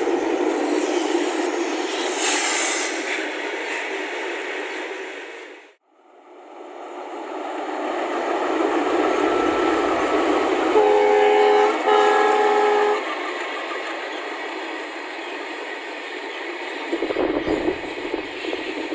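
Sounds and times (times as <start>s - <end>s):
diesel locomotive engine chugging: 0.0s - 18.9s
locomotive horn blasts: 9.1s - 13.1s.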